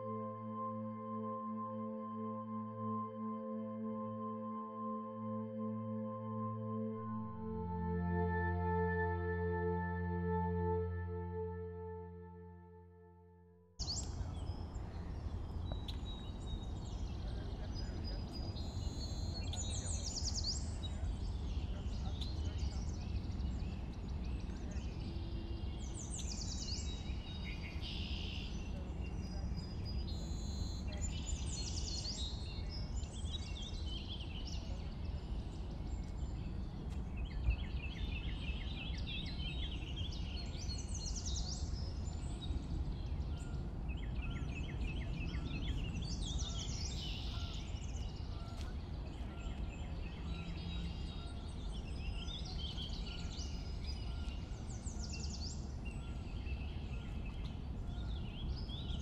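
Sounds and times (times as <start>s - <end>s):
birds singing and calling: 13.8s - 59.0s.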